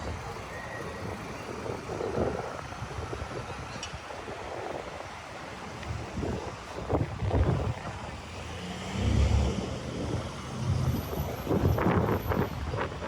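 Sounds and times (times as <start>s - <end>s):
traffic noise with low rumble: 0.0s - 13.0s.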